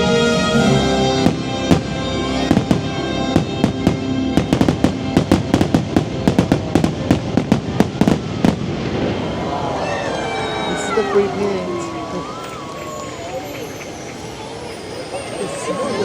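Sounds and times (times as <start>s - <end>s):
soundtrack music: 0.0s - 7.7s
fireworks bangs and pops: 1.2s - 9.3s.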